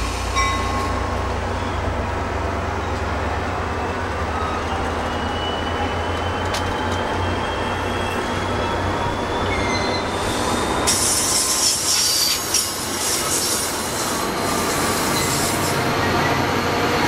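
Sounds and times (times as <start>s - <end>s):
train coaches rumbling past: 0.0s - 17.0s
high-pitched wheel squeal: 3.8s - 12.6s.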